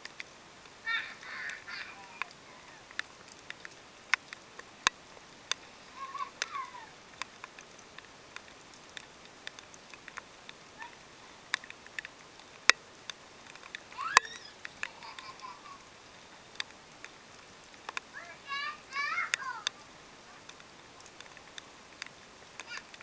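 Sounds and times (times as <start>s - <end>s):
rain dripping: 0.0s - 23.0s
small children squealing: 0.9s - 2.8s, 13.9s - 15.6s.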